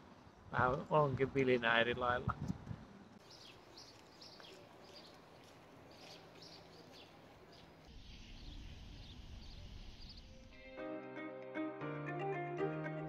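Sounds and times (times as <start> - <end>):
small birds chirping: 3.1 - 10.6.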